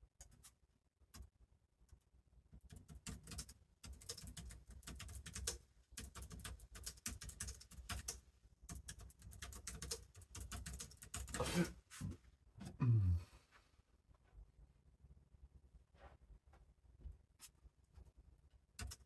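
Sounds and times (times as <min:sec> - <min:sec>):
typing on computer keyboard: 0:02.5 - 0:11.4, 0:18.8 - 0:19.0.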